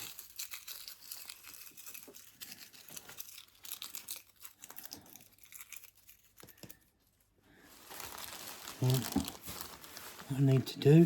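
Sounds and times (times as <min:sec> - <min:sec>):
dry leaves crackling: 0:07.6 - 0:11.0.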